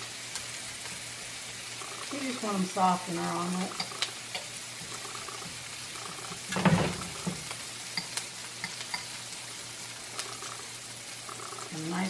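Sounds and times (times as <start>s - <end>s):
vegetables sizzling in a pan: 0.0s - 12.0s
spatula stirring and scraping: 7.2s - 9.3s.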